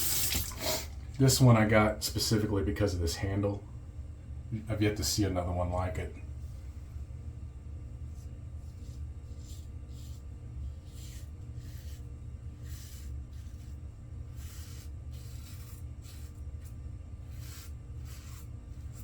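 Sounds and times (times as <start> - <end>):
razor scraping stubble: 8.8 - 19.0.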